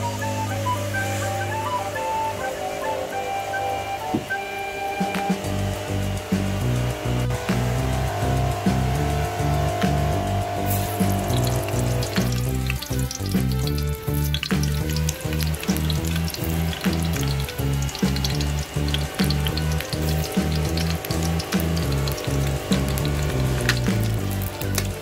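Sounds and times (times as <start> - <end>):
background music with beat: 0.0 - 25.0
onions sizzling in oil: 7.9 - 25.0.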